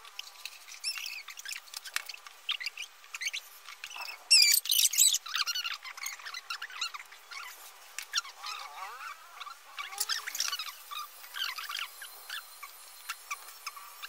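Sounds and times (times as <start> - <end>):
high-pitched chirps and squeaks: 0.5 - 14.0.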